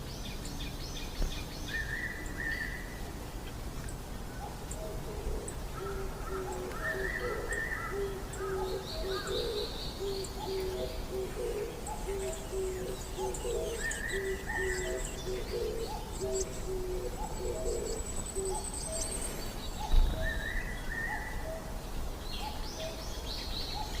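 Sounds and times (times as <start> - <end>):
low hooting bird call: 4.8 - 21.6.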